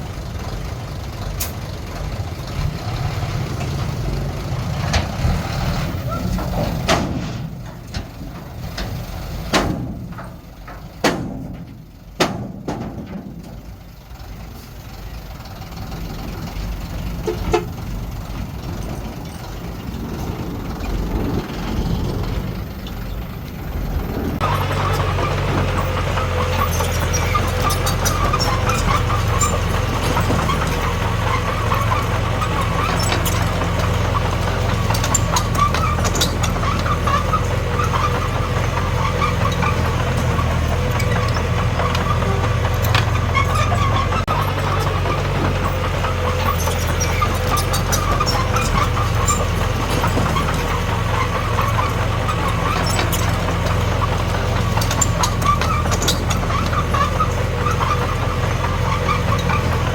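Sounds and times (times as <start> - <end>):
diesel engine of heavy machinery: 0.0 - 59.9
sharp knocks: 9.5 - 13.6.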